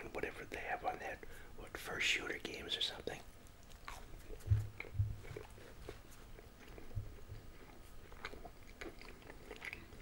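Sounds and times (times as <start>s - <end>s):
chewing food: 3.3s - 10.0s
soft low thumps: 4.4s - 5.6s.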